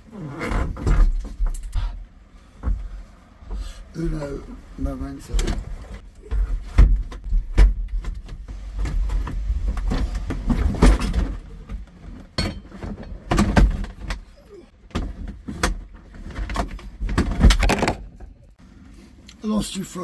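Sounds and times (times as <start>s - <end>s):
knocks and clunks: 0.4s - 4.4s, 5.2s - 18.5s.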